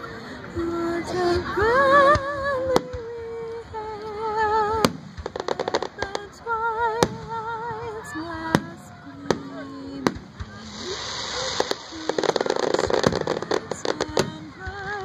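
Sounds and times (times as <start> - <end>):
crackling pops: 2.1 - 7.6, 8.4 - 15.0
fireworks exploding with bangs: 4.7 - 15.0.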